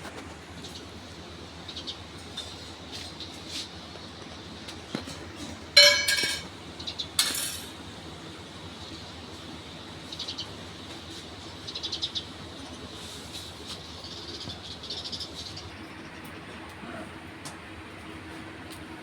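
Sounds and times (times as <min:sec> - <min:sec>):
sparrows chirping: 0:00.4 - 0:16.7
loud ringing clink: 0:05.8 - 0:06.5.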